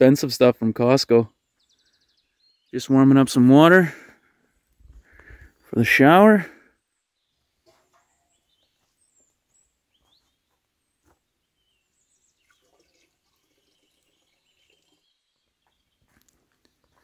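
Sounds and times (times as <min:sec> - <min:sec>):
faint bird chirps: 0:01.3 - 0:02.8, 0:06.7 - 0:17.0.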